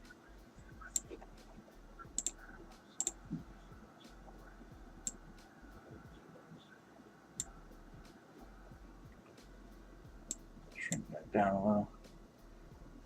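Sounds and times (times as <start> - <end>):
computer mouse clicks: 2.2 - 2.4, 3.0 - 3.2.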